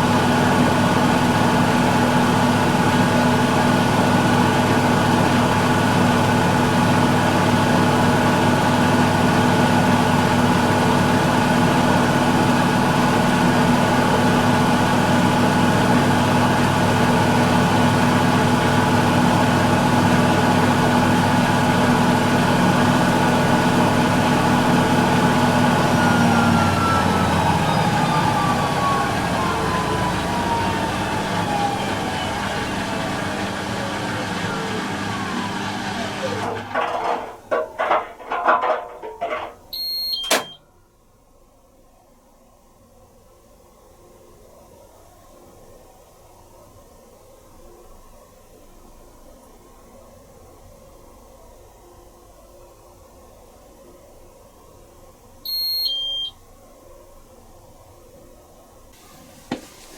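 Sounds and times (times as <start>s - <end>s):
washing machine spinning: 0.0s - 40.6s, 59.0s - 59.9s.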